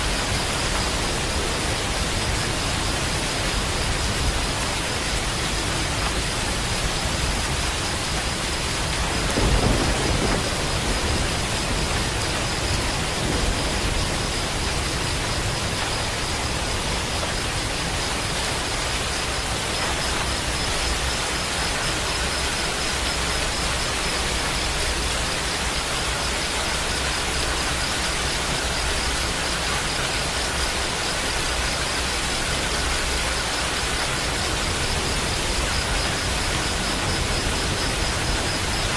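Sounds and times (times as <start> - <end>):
heavy rain hissing: 0.0 - 38.9
low rumble of thunder: 5.6 - 18.4, 32.8 - 38.9.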